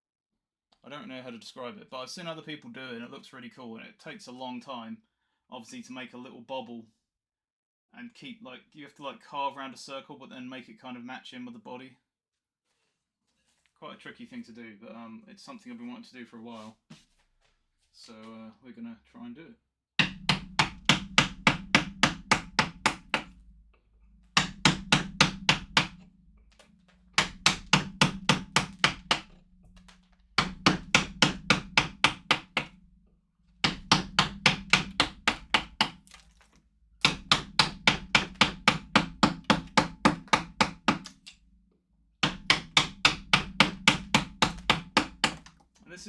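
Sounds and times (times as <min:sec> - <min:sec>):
mallet tapping chisel into wood: 0:20.0 - 0:23.3, 0:24.4 - 0:32.8, 0:33.6 - 0:41.4, 0:42.2 - 0:45.6.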